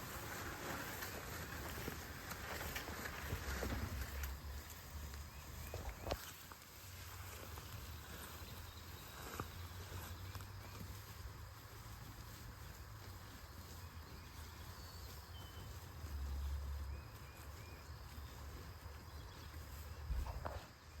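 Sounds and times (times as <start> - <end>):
wind rumble on microphone: 19.4 - 20.6.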